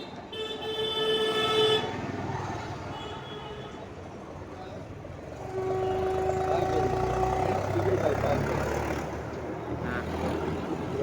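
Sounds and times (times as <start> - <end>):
vehicle engine passing by: 7.0 - 11.0.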